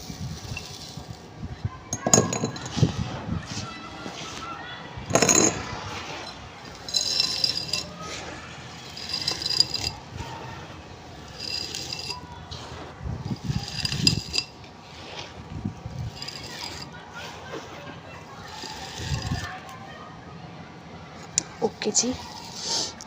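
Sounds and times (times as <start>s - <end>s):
charcoal crunching and clinking: 0.3s - 1.2s, 1.9s - 2.8s, 5.1s - 19.8s.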